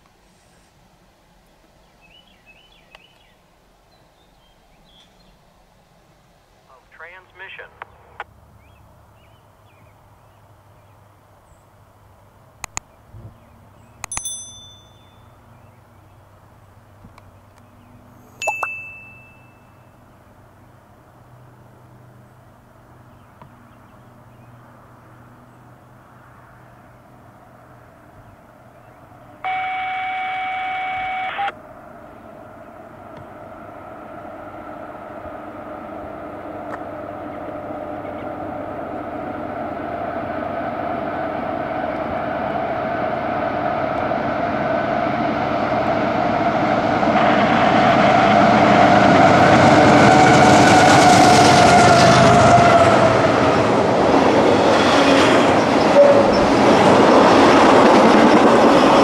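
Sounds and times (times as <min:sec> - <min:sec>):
diesel locomotive engine drone: 0:00.0 - 0:59.0
steady tone: 0:18.4 - 0:19.8
train wheels rumbling: 0:33.3 - 0:59.0.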